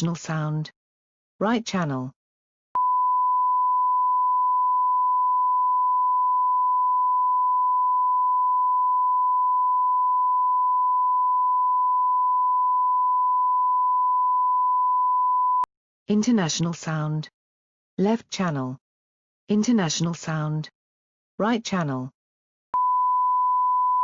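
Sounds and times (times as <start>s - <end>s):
sine-wave test tone: 2.8s - 15.7s, 22.8s - 24.0s.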